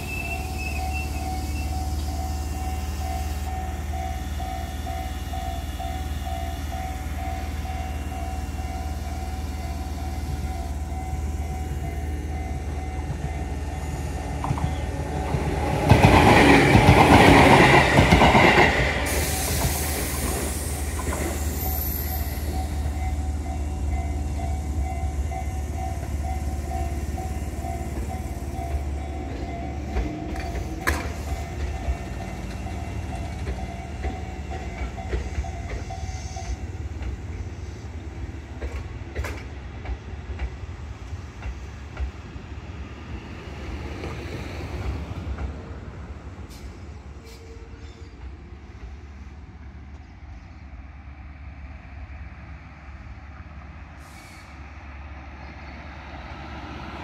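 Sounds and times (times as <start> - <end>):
electric train rolling past: 0.0 - 57.0
high hiss: 19.0 - 22.9.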